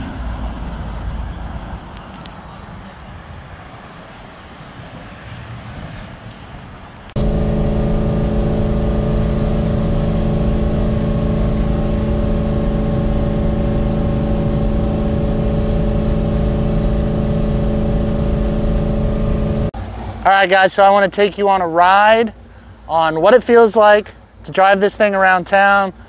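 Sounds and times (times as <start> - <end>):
car engine drone: 6.0 - 22.9.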